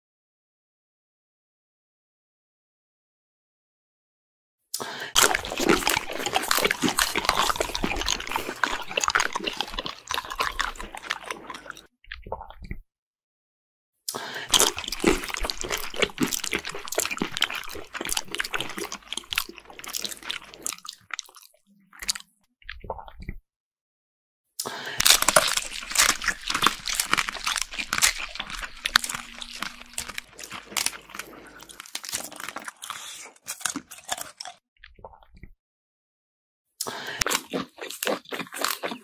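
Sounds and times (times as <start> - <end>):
crunching and chewing: 4.8 - 12.8, 14.1 - 23.4, 24.6 - 35.5, 36.8 - 39.0.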